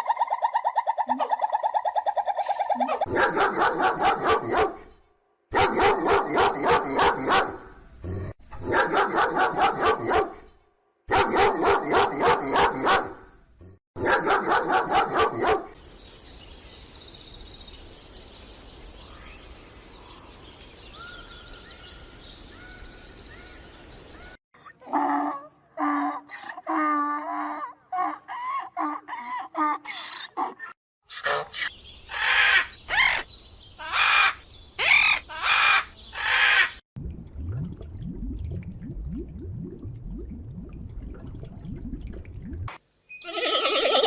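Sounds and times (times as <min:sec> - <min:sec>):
dog barking rapidly: 0:02.8 - 0:04.8, 0:05.5 - 0:07.7, 0:08.6 - 0:10.4, 0:11.1 - 0:13.2, 0:14.0 - 0:15.8, 0:30.4 - 0:31.6
animal call: 0:43.2 - 0:44.0.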